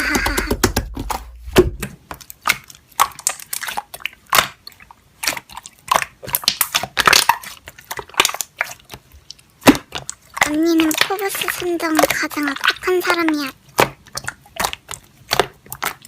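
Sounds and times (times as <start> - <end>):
slime squished by hand popping: 0.0 - 8.9.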